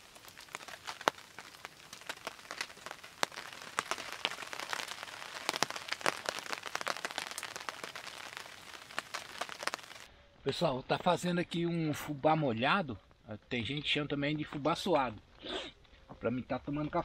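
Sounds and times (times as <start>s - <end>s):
rain falling: 0.0s - 10.1s
sharp raindrop hits: 0.0s - 10.1s.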